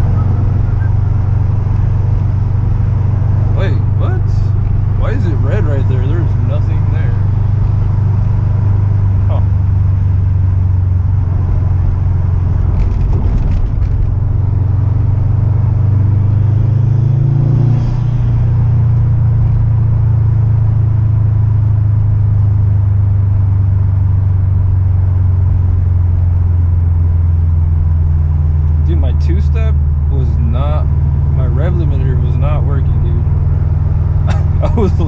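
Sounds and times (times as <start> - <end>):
car engine droning: 0.0 - 35.0.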